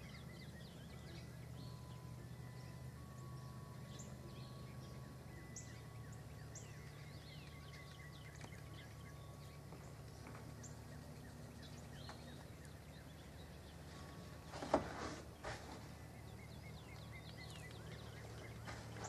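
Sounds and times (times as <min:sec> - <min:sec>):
steady low rumble: 0:00.0 - 0:14.5, 0:15.3 - 0:19.0
small birds chirping: 0:00.0 - 0:19.0.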